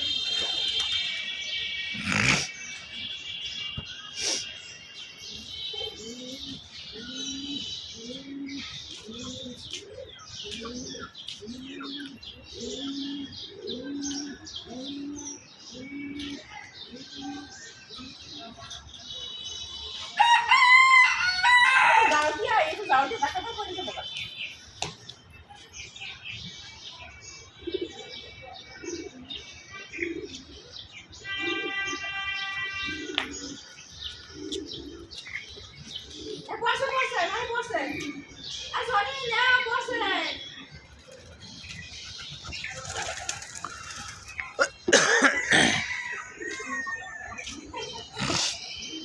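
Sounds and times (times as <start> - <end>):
small birds chirping: 0.0 - 20.2, 22.0 - 49.0
cat hissing: 2.0 - 2.5
low cooing call: 6.0 - 18.2.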